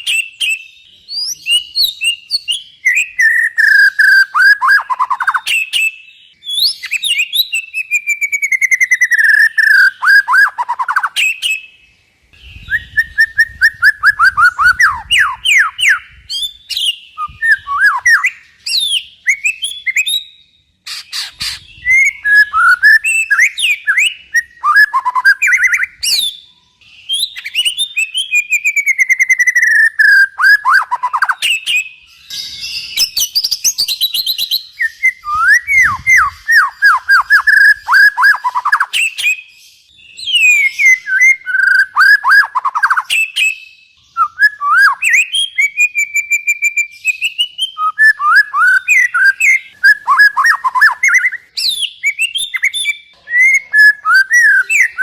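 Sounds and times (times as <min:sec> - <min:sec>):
songbird whistled notes: 0:00.0 - 0:11.8, 0:12.4 - 0:55.0
scratchy bird chatter: 0:20.8 - 0:22.2.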